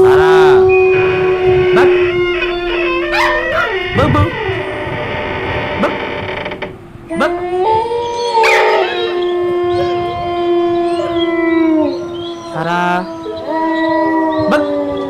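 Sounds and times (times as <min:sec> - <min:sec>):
dogs howling: 0:00.0 - 0:06.1, 0:07.1 - 0:15.0.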